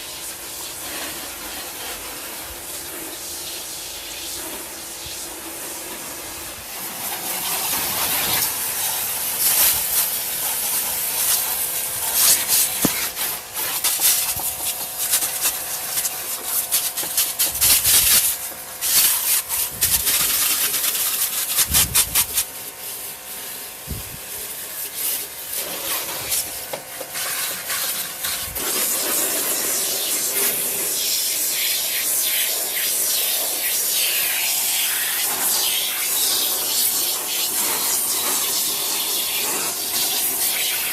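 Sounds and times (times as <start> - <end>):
water spray hissing: 0.0 - 40.9.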